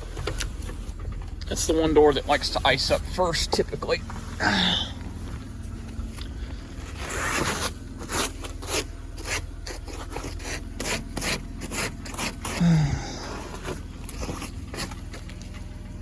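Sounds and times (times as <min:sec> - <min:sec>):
steady low hum: 0:00.0 - 0:16.0
ice scraped off car glass: 0:06.9 - 0:12.6.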